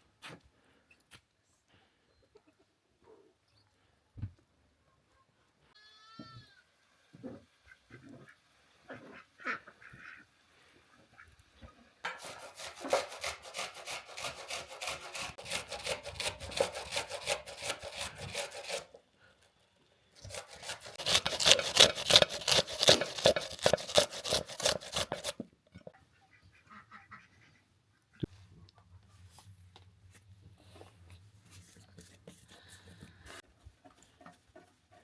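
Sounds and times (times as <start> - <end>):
rapid rhythmic scraping strokes: 12.1 - 18.9, 20.2 - 25.4.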